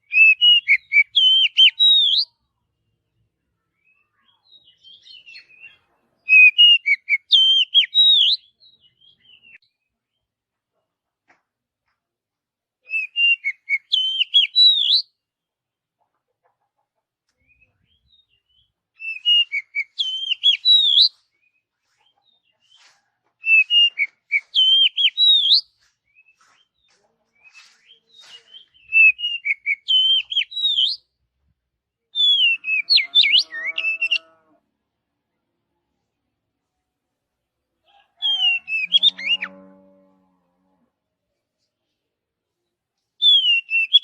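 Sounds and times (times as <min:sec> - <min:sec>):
bird singing whistled notes: 0:00.0 - 0:02.4, 0:03.8 - 0:09.8, 0:12.9 - 0:15.2, 0:17.5 - 0:21.6, 0:23.4 - 0:26.7, 0:27.6 - 0:31.1, 0:32.2 - 0:34.3, 0:43.2 - 0:44.0.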